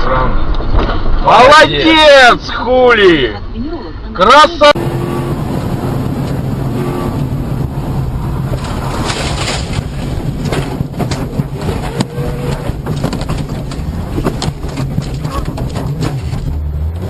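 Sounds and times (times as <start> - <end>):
road noise: 0.0 - 17.0
car engine running: 4.6 - 17.0
sharp clicks and knocks: 8.5 - 16.6.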